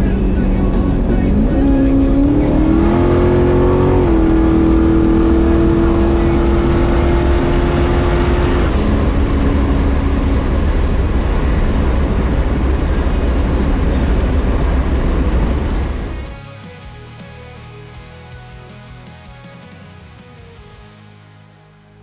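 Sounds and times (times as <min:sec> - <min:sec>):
car engine running: 0:00.0 - 0:16.4.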